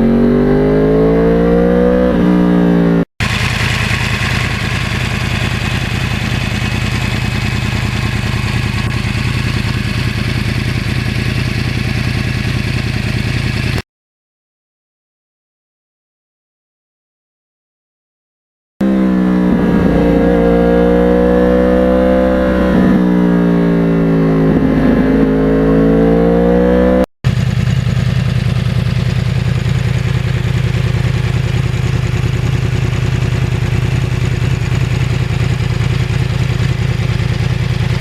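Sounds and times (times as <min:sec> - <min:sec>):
motorcycle engine revving: 0:00.0 - 0:13.8, 0:18.8 - 0:38.0
low drone: 0:18.8 - 0:26.8
rushing noise: 0:19.0 - 0:25.4.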